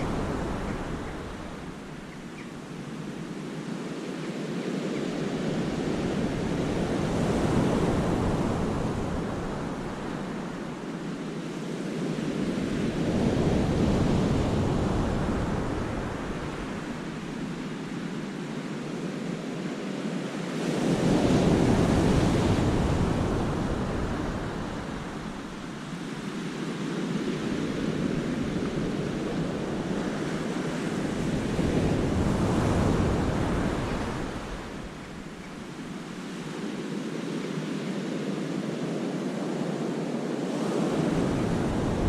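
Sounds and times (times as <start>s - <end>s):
wind buffeting microphone: 27.2s - 36.1s, 40.5s - 42.0s.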